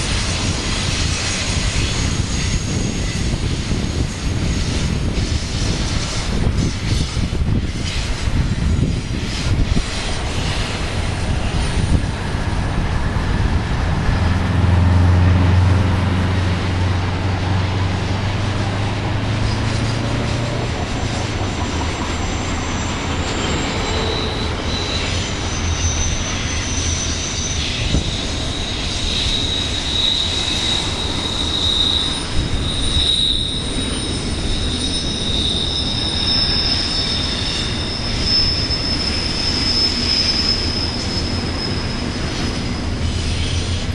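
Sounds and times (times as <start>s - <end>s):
freight train cars rolling: 0.0s - 43.9s
wheels squealing: 0.0s - 43.9s
low drone: 12.0s - 21.4s.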